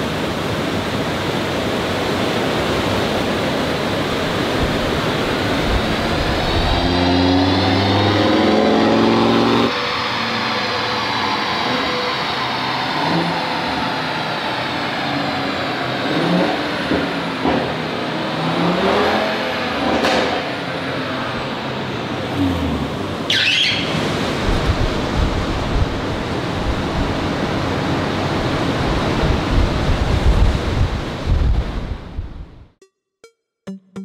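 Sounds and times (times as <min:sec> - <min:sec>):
car engine revving: 0:05.3 - 0:10.9, 0:16.0 - 0:23.4.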